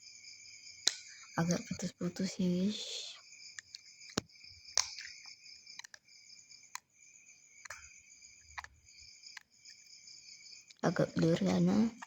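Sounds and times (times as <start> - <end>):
crickets trilling: 0.0 - 12.0
slime clicking: 5.8 - 6.0.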